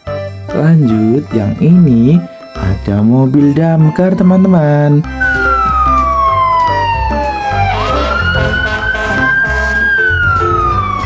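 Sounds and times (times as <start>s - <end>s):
background music with steady beat: 0.0s - 11.0s
fire engine siren wailing: 4.0s - 11.0s.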